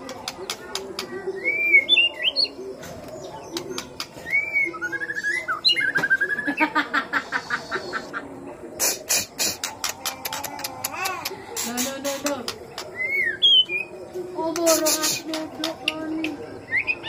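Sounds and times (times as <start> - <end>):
bird clicks and harsh notes: 8.8 - 13.0.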